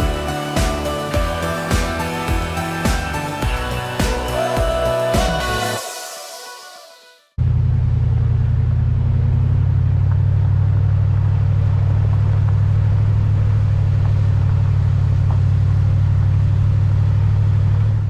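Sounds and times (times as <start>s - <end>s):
vehicle engine drone: 0.0s - 5.8s, 7.3s - 18.0s
road noise: 7.4s - 18.0s.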